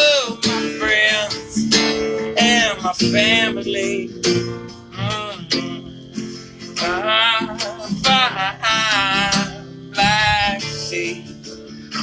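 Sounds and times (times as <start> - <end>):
acoustic guitar strumming: 0.0 - 12.0
person singing wordless notes: 2.4 - 6.2.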